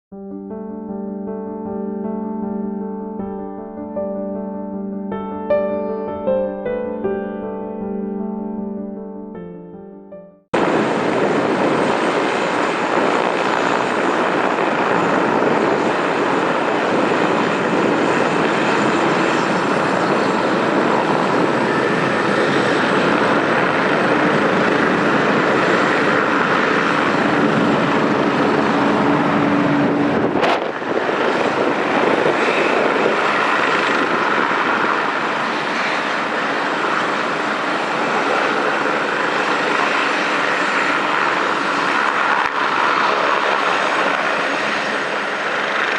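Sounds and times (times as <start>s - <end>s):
aircraft engines rushing: 10.5s - 45.9s.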